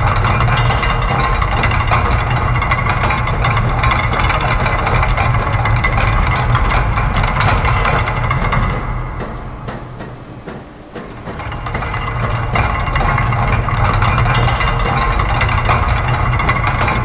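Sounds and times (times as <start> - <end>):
mechanical clatter of rapid ticks: 0.0 - 17.0
steady low machine hum: 0.0 - 17.0.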